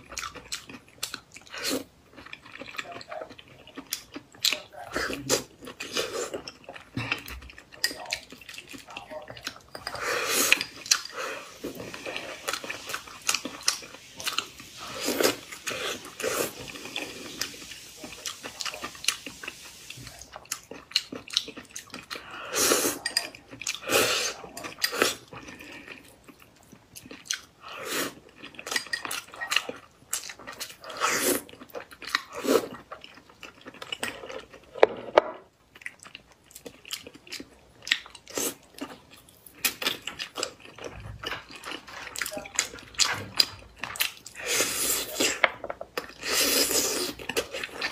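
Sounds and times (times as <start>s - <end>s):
person chewing food: 0.0s - 47.9s.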